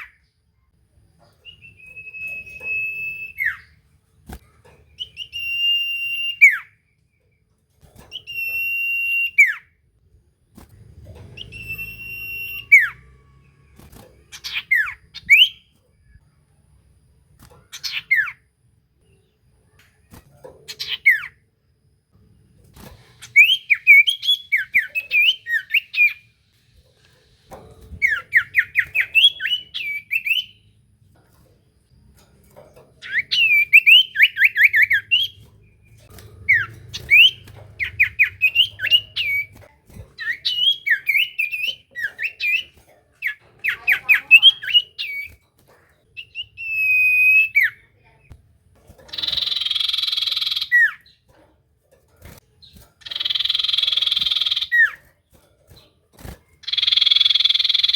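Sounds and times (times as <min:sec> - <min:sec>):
bird whistling song: 0:01.4 - 0:03.8, 0:04.9 - 0:06.9, 0:08.1 - 0:09.8, 0:11.4 - 0:15.7, 0:17.7 - 0:18.4, 0:20.7 - 0:21.4, 0:23.2 - 0:26.4, 0:28.0 - 0:30.7, 0:33.0 - 0:39.6, 0:40.2 - 0:45.4, 0:46.2 - 0:47.8, 0:49.1 - 0:51.2, 0:52.6 - 0:55.0, 0:56.6 - 0:57.9
long level bird whistle: 0:05.0 - 0:06.8, 0:11.4 - 0:13.0, 0:53.1 - 0:54.9, 0:56.6 - 0:57.9.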